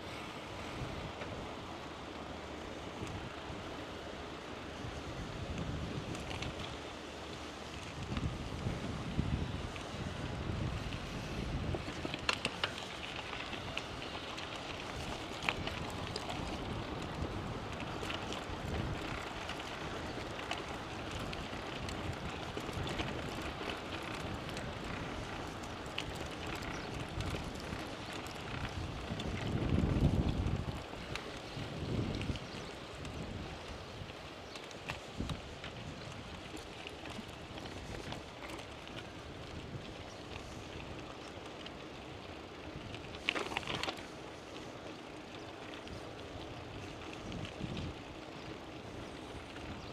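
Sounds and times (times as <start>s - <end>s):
bicycle tyres rolling: 0.0s - 49.9s
wind rushing over microphone: 4.7s - 6.8s, 7.9s - 12.6s, 13.4s - 34.2s, 46.7s - 49.9s.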